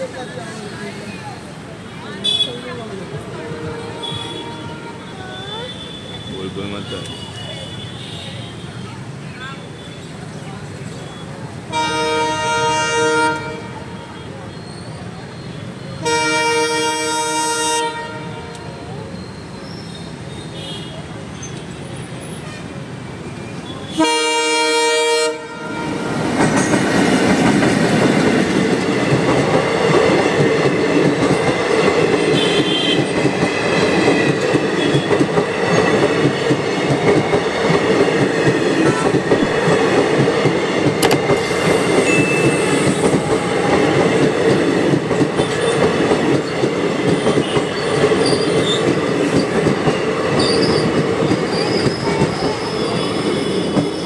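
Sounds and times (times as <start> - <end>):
locomotive horn blast: 3.4 - 5.2, 11.7 - 14.3, 16.0 - 18.9, 23.9 - 26.2, 32.3 - 33.1
train wheels clattering over rails: 25.4 - 54.0.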